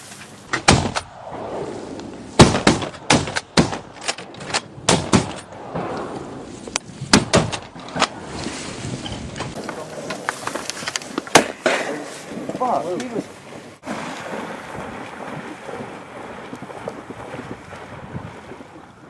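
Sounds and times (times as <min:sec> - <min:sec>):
shotgun shots with echo: 0:02.4 - 0:04.0.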